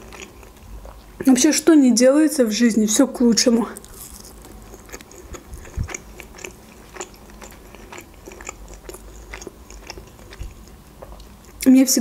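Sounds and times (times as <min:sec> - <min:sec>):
chewing potato wedges: 0:00.0 - 0:01.4, 0:03.6 - 0:11.7.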